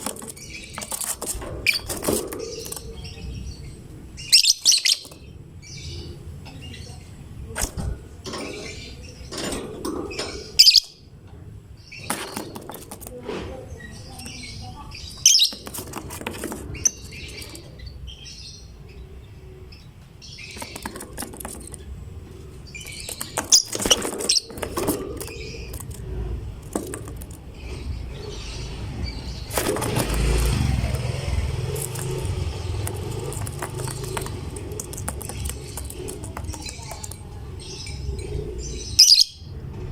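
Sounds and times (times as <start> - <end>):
lovebird chirping: 1.6 - 7.2, 10.1 - 11.1, 13.8 - 15.9, 22.6 - 25.9, 27.4 - 39.5.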